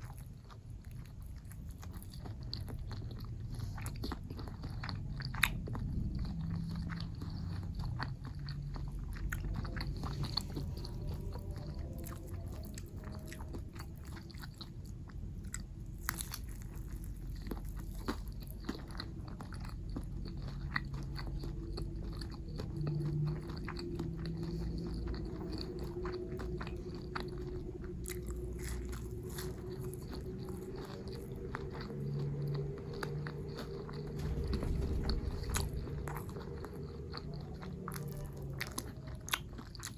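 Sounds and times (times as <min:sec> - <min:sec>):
biting and chewing food: 0:00.0 - 0:39.9.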